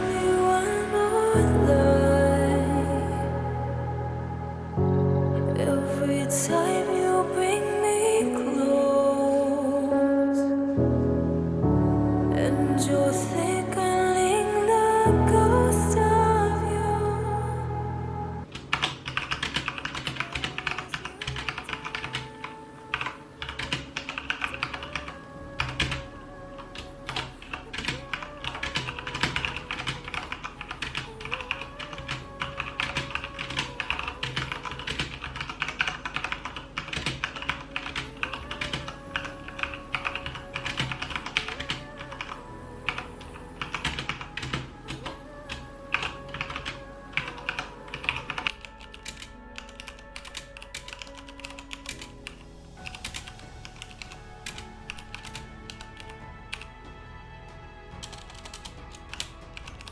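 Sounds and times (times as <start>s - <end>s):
background music: 0.0s - 59.9s.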